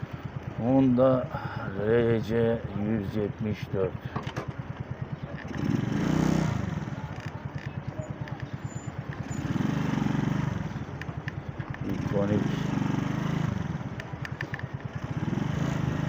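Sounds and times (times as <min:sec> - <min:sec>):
small motorcycle engine revving: 0:04.1 - 0:16.0.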